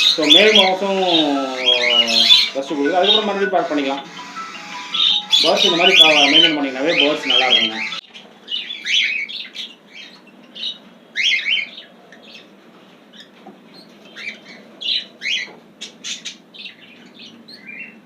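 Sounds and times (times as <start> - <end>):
birds chirping and squawking: 0.0 - 18.0.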